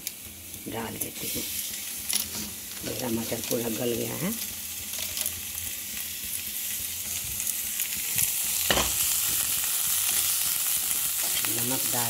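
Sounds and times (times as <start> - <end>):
masala sizzling in oil: 0.0 - 12.0
knock on pan: 8.7 - 9.0.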